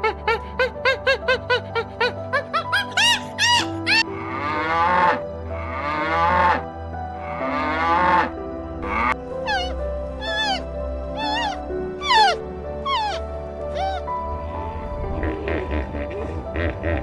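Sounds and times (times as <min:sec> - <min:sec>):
soft background music: 0:00.0 - 0:17.0
cow mooing: 0:04.0 - 0:06.6, 0:07.2 - 0:09.2, 0:14.3 - 0:17.0.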